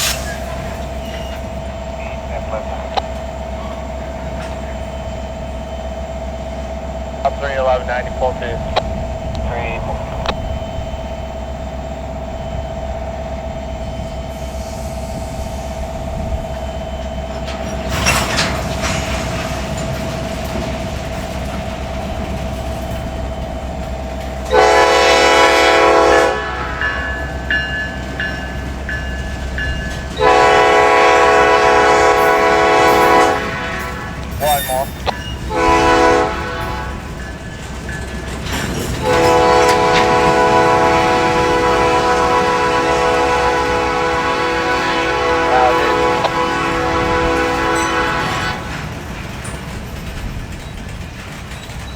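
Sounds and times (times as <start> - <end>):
diesel locomotive running: 0.0 - 51.9
locomotive air horn blasts: 24.5 - 27.6, 30.2 - 37.2, 39.0 - 48.9.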